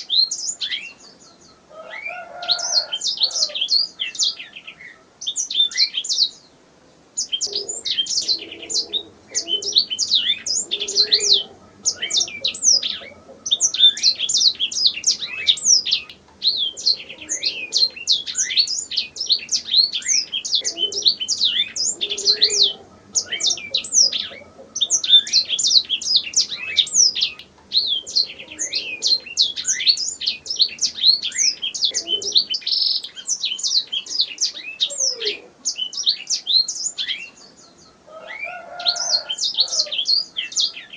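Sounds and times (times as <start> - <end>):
canary singing: 0.0 - 6.5, 7.2 - 40.9.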